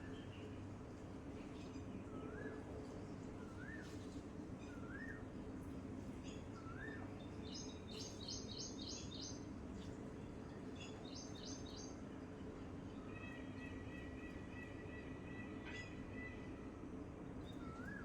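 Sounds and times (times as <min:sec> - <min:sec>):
songbirds whistling and chirping: 0:03.5 - 0:04.0, 0:04.6 - 0:05.2, 0:06.6 - 0:09.4, 0:17.5 - 0:18.0.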